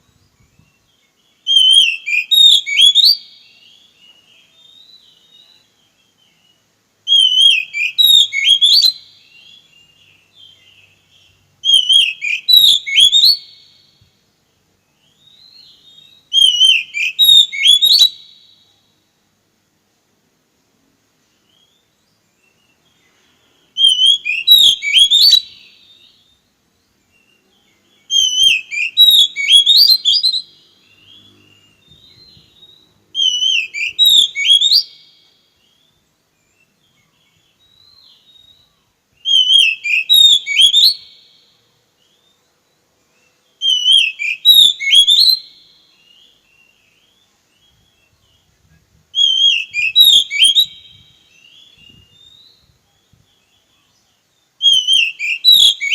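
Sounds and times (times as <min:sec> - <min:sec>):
bird singing warbled whistles: 0:00.3 - 0:14.0, 0:14.9 - 0:18.8, 0:21.4 - 0:55.9.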